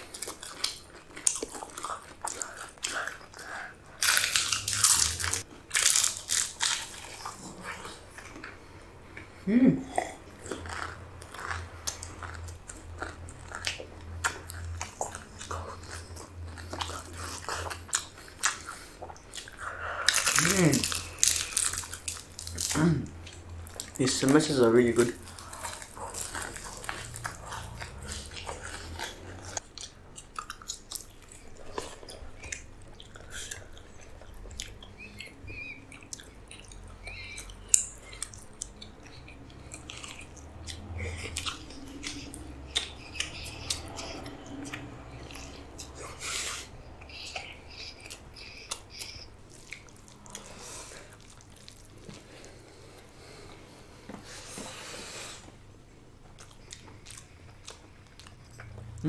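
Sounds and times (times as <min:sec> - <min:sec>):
people chewing food: 0:00.0 - 0:59.0
crunching bites: 0:00.1 - 0:07.5.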